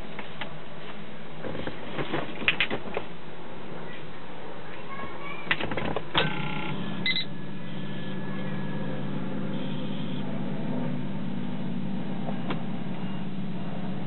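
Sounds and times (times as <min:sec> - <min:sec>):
steady electrical hum: 0:05.9 - 0:14.0
short electronic beeps: 0:06.3 - 0:08.2, 0:09.5 - 0:10.2.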